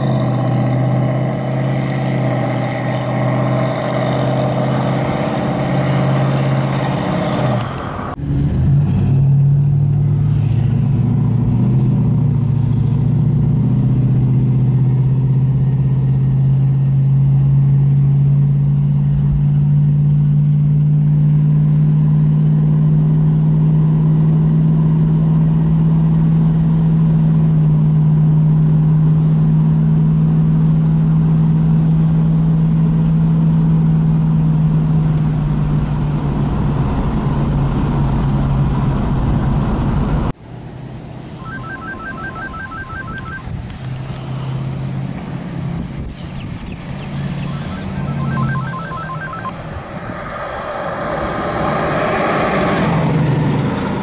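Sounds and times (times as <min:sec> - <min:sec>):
car engine droning inside cabin: 0:46.6 - 0:50.0.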